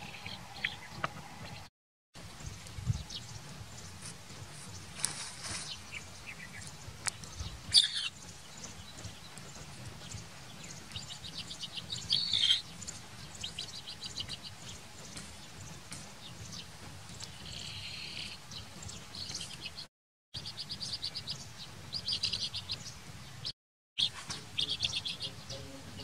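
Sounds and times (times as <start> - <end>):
birds chirping: 0.0 - 26.0
faint outdoor hiss: 20.4 - 26.0.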